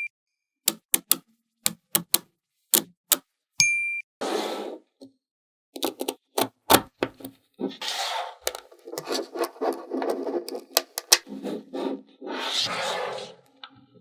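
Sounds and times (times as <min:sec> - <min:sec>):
magnetic balls clicking together: 0:00.7 - 0:02.2, 0:08.5 - 0:11.2.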